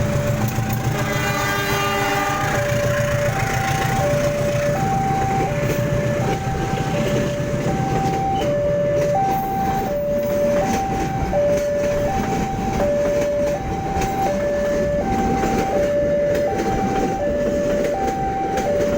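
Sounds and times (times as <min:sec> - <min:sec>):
passing train rumble and clatter: 0:00.0 - 0:18.9
two-tone crossing alarm: 0:00.0 - 0:18.9.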